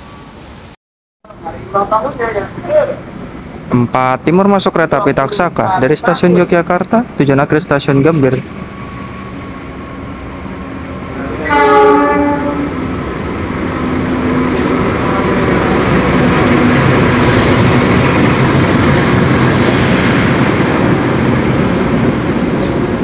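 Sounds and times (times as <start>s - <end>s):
train engine and wheels passing: 0.0s - 23.0s
locomotive horn: 11.2s - 13.0s.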